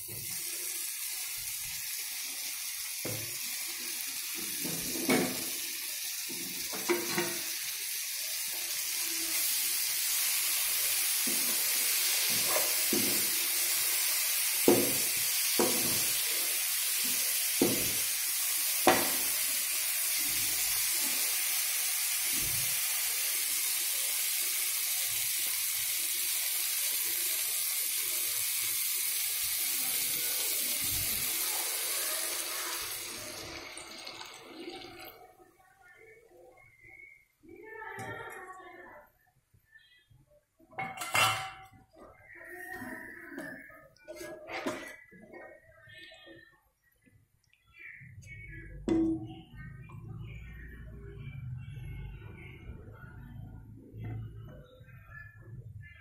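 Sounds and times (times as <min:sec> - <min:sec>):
food sizzling in a pan: 0:00.0 - 0:35.4.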